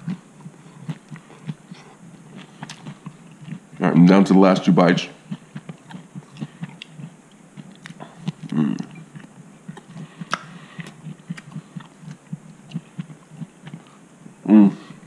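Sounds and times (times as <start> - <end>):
person chewing with mouth clicks: 0.0 - 3.8, 5.2 - 14.0
person humming mmm: 7.9 - 12.2, 14.4 - 15.0.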